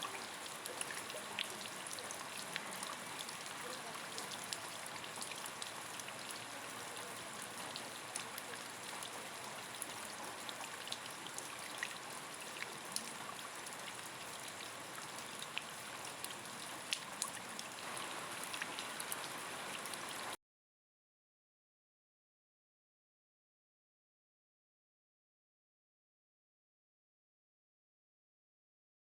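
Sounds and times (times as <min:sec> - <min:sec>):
rain falling steadily: 0:00.0 - 0:20.4
raindrops ticking on a surface: 0:00.0 - 0:20.4.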